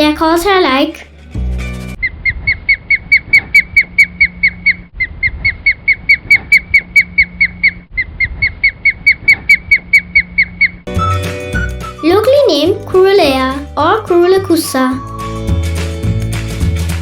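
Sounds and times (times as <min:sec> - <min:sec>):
osprey whistled calls: 0:02.0 - 0:12.1.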